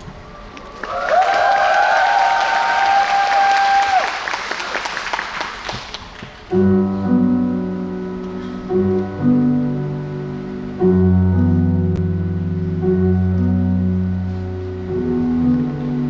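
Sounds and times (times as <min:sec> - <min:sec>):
applause: 0:00.5 - 0:06.4
piano playing slow chords: 0:06.4 - 0:16.0.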